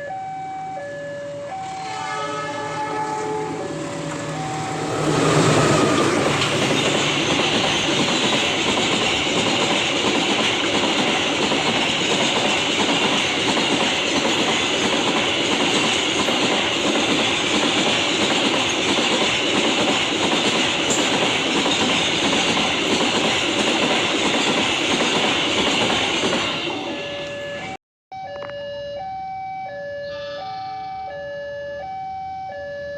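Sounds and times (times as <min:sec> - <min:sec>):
train wheels clattering on rails: 0:03.1 - 0:27.6.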